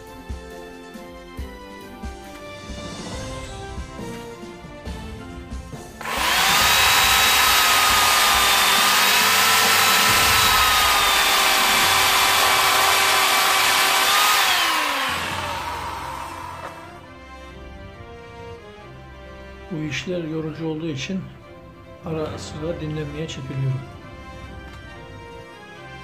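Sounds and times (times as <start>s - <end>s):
electric power tool whining: 5.9s - 17.1s.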